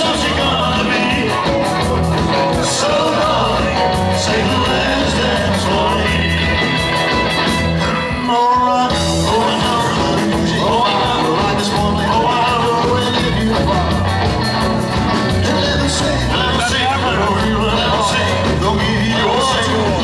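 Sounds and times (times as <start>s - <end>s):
electric guitar: 0.0s - 20.0s
rock band playing: 0.0s - 20.0s.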